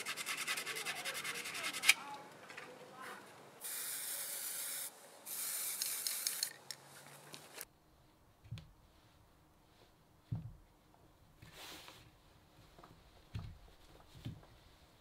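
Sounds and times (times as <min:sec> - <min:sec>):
hissing spray: 0:03.6 - 0:06.5.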